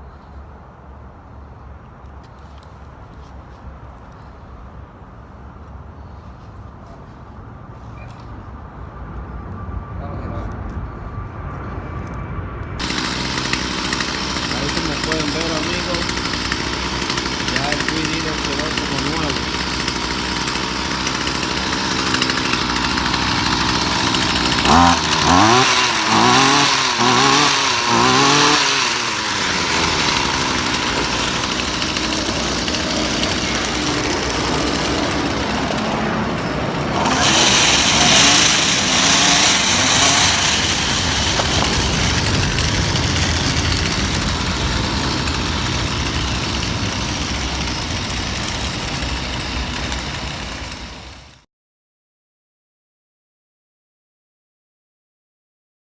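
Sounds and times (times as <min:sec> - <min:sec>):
string trimmer engine revving: 0:12.8 - 0:51.3.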